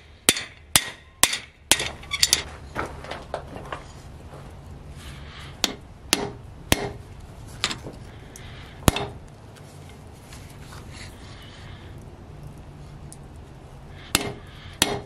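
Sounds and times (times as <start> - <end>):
hammer striking steel anvil: 0.3 - 2.4, 5.6 - 7.0, 14.1 - 15.0.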